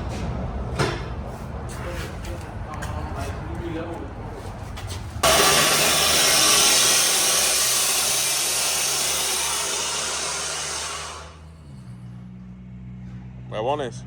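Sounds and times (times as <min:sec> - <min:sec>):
loud steady hiss: 0:05.2 - 0:11.4
low engine hum: 0:11.2 - 0:14.0.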